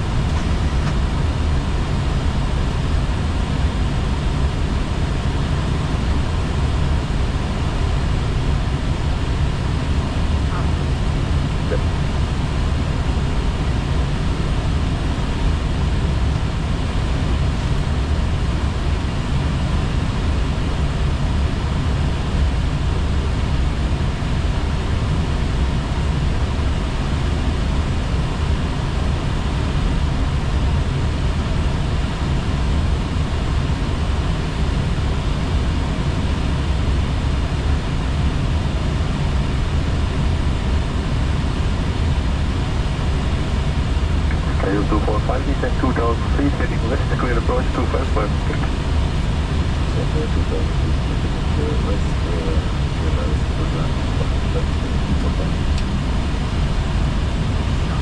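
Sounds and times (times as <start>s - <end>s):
aircraft engine hum: 0.0s - 58.0s.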